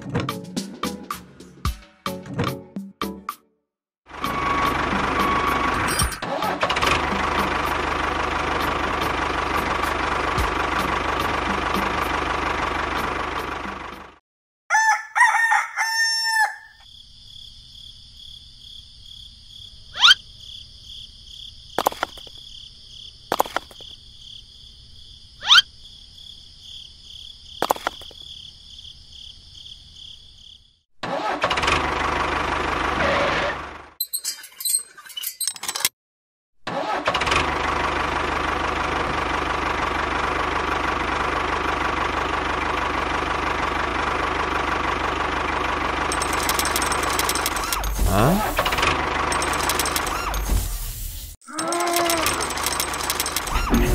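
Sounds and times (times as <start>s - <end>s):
tractor engine running: 4.1s - 14.2s, 27.6s - 28.2s, 31.5s - 33.0s, 36.8s - 53.9s
rooster crowing: 14.7s - 16.8s
sharp clicks: 23.3s - 23.8s, 46.1s - 50.6s, 51.6s - 53.9s.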